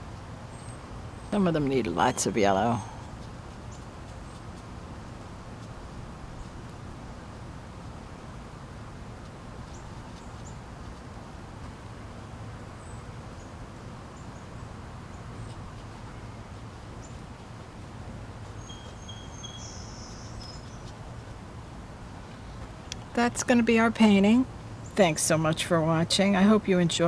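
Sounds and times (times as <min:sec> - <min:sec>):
low background hum: 0:00.0 - 0:27.0
faint high bird chirps: 0:18.6 - 0:20.9.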